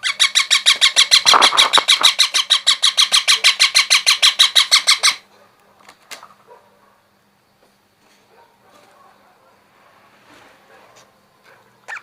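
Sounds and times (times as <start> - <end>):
baby parrot begging chirps: 0.0 - 5.2.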